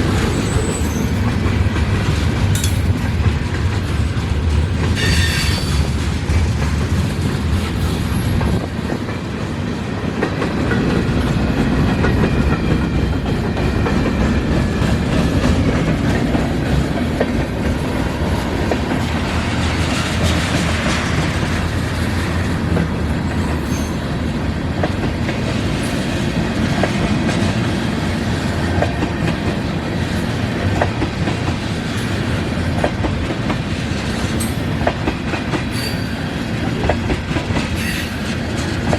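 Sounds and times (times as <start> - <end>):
freight train rumbling: 0.0 - 38.9
wheels clicking over rail joints: 0.1 - 9.2.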